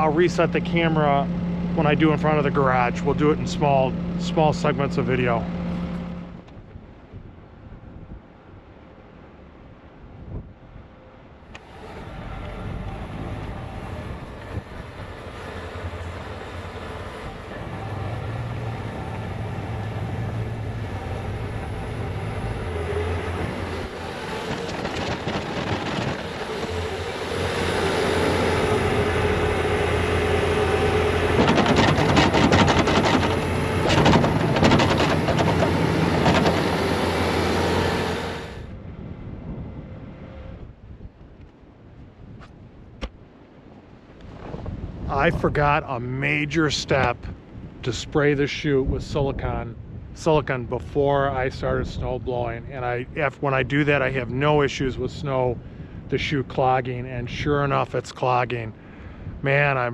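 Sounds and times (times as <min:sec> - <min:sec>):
track loader running: 0:00.0 - 0:06.7, 0:11.4 - 0:40.5
rapid clatter: 0:14.4 - 0:38.2.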